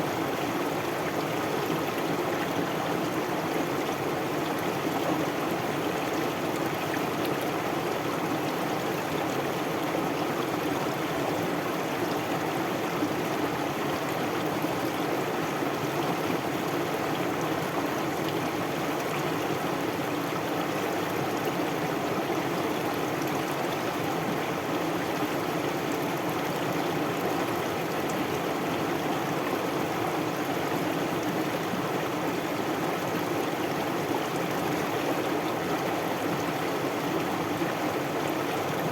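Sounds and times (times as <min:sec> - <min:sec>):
stream water flowing: 0:00.0 - 0:38.9.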